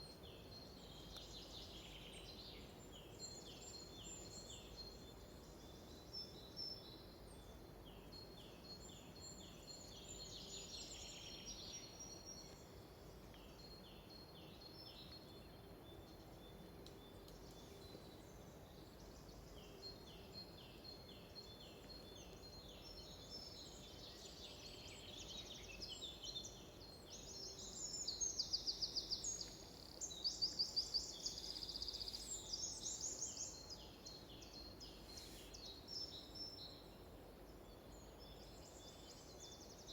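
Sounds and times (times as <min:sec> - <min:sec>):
faint background hiss: 0:00.0 - 0:39.9
songbirds chirping and trilling: 0:00.0 - 0:39.9.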